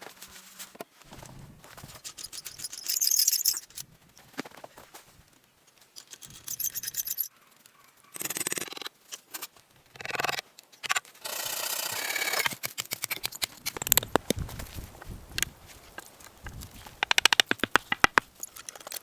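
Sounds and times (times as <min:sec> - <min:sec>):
scraping: 0:12.8 - 0:19.0
clicks and knocks: 0:15.3 - 0:18.9.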